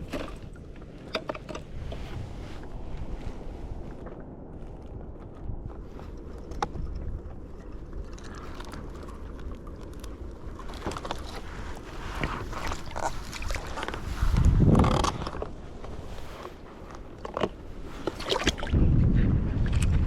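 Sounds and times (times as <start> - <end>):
low rumble: 0.0 - 20.0
water sloshing: 6.1 - 18.8
knocks and scrapes on paddleboard: 10.6 - 18.8.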